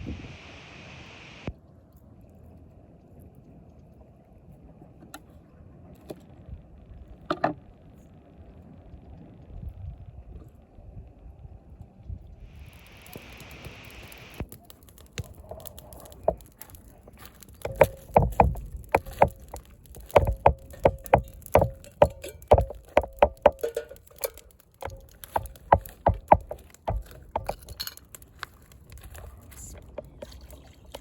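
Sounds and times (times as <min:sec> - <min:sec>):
sharp ringing knocks: 0:17.7 - 0:27.7.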